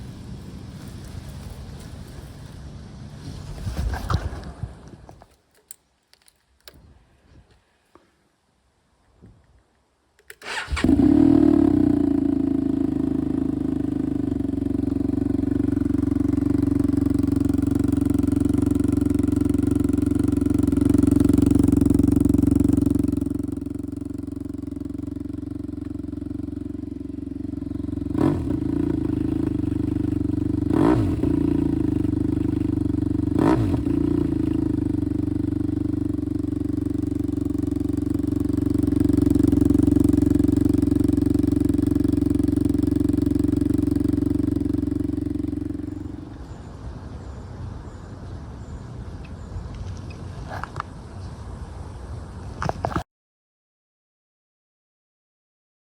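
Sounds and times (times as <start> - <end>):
motorcycle engine idling: 0.0 - 3.2, 10.4 - 50.0
motorcycle throttle blips: 10.2 - 46.7.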